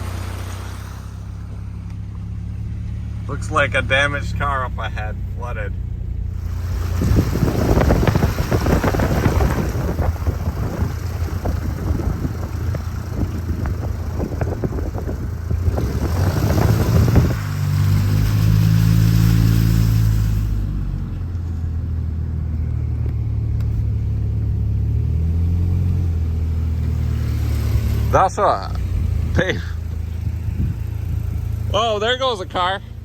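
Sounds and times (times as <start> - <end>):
water spray rushing: 0.0 - 1.6, 6.4 - 12.8, 15.6 - 20.8
car engine hum: 0.0 - 33.0
wind noise: 6.4 - 20.8, 30.0 - 31.6.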